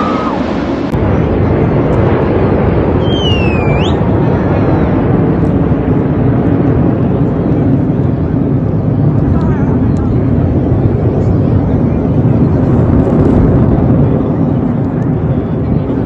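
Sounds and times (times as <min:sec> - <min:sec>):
falling and rising whistle: 0:00.0 - 0:00.9, 0:03.0 - 0:04.0
crowd noise: 0:00.0 - 0:16.0
distant aircraft rumble: 0:00.0 - 0:16.0
jet aircraft whine: 0:00.0 - 0:16.0.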